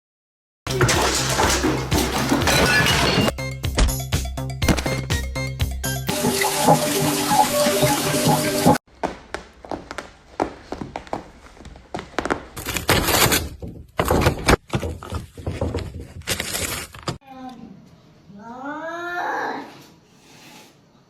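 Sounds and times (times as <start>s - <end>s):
knocks thuds and rustling: 0.7s - 4.0s, 12.0s - 17.2s.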